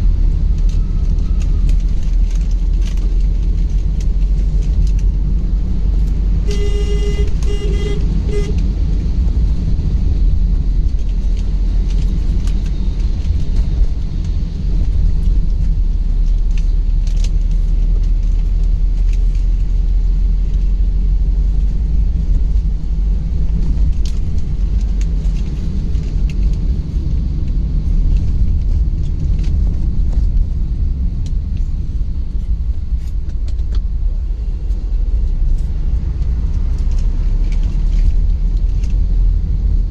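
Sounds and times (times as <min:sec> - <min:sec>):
car driving rumble: 0:00.0 - 0:39.9
vehicle horn honking: 0:06.4 - 0:08.6.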